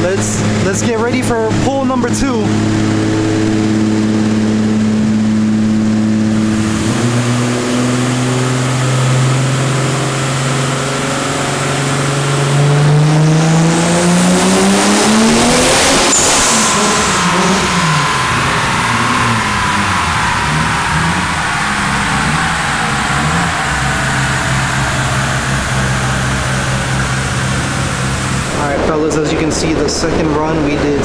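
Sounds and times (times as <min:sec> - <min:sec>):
turbo engine revving on dyno: 0:00.0 - 0:31.0
sharp burst: 0:13.4 - 0:29.3.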